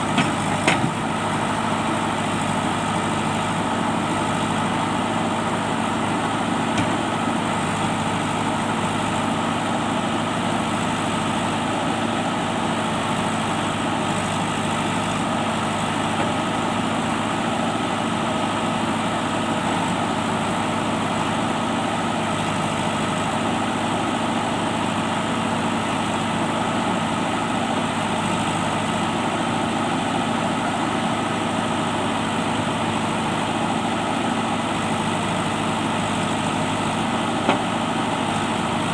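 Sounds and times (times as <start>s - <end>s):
diesel engine running steadily: 0.0s - 38.9s.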